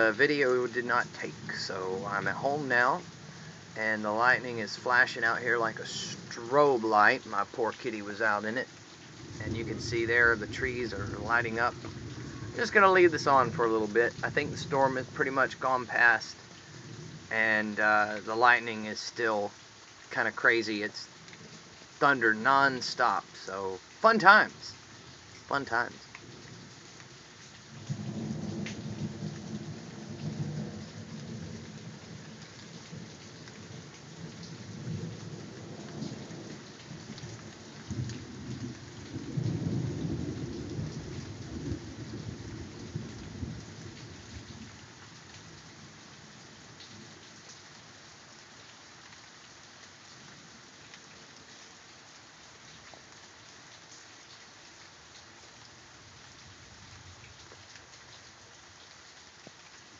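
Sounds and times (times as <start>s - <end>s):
steady rain: 0.0s - 59.9s
rolling thunder: 9.2s - 15.6s, 27.8s - 44.6s.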